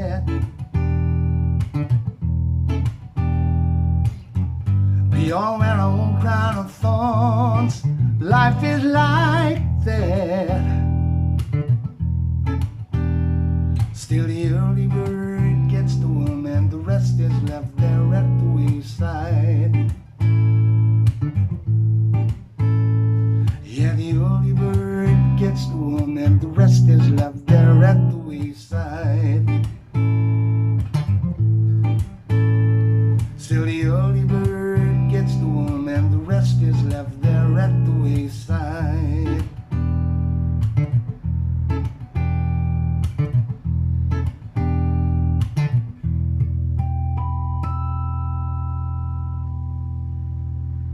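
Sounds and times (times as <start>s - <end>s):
fingerpicked guitar: 0.0s - 50.9s
octave-down bass line: 0.0s - 50.9s
person singing with vibrato: 5.1s - 10.9s.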